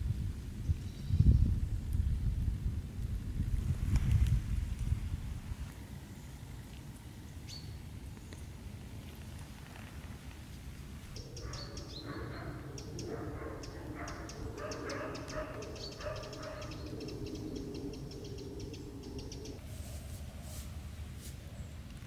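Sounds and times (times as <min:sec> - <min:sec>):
birds calling: 0:11.1 - 0:19.6.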